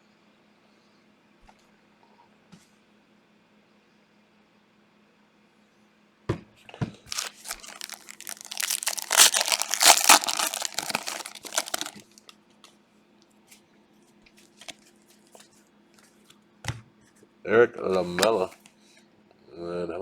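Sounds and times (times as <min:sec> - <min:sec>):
plastic wrapper crinkling: 0:07.1 - 0:12.3.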